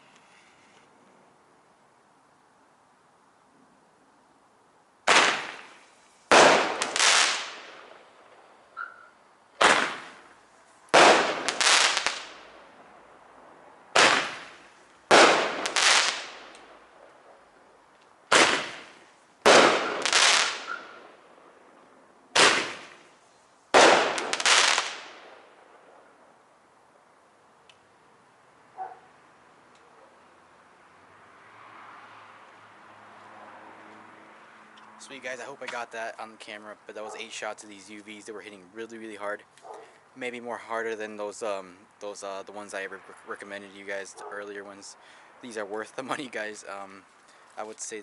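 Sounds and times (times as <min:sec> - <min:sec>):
firework launch pop: 0:05.1 - 0:07.0, 0:09.6 - 0:10.2, 0:18.3 - 0:21.0, 0:22.4 - 0:23.1
firework double bang: 0:05.1 - 0:08.0, 0:09.6 - 0:10.3, 0:11.0 - 0:12.3, 0:14.0 - 0:16.5, 0:18.3 - 0:21.1, 0:22.3 - 0:23.1, 0:23.7 - 0:25.4.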